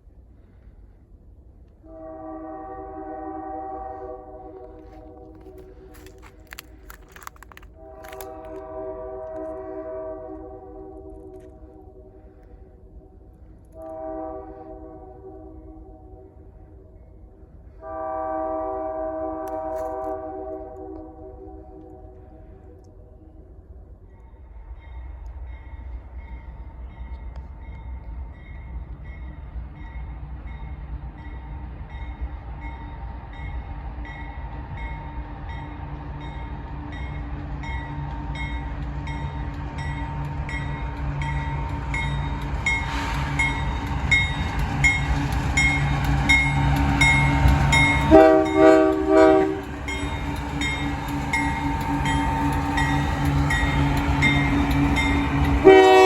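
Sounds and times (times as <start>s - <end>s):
locomotive engine rumble: 0.1s - 15.3s, 16.3s - 56.0s
locomotive horn blast: 1.8s - 6.7s, 7.5s - 12.3s, 13.8s - 16.4s, 17.7s - 22.4s, 46.9s - 50.4s, 51.5s - 56.0s.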